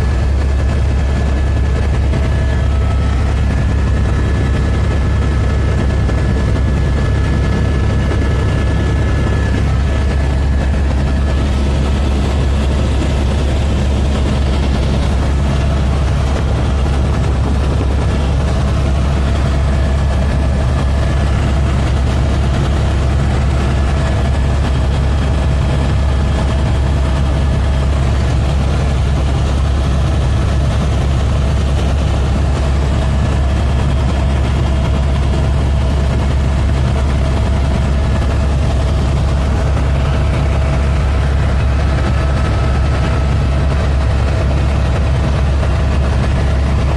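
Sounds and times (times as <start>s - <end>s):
helicopter rotor and engine: 0.0s - 46.9s.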